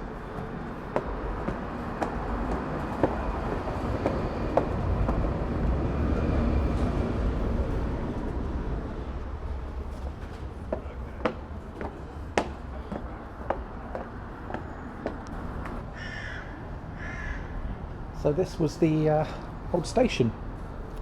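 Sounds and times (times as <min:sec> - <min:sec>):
footsteps on stairs: 0:00.0 - 0:05.6, 0:09.9 - 0:15.8.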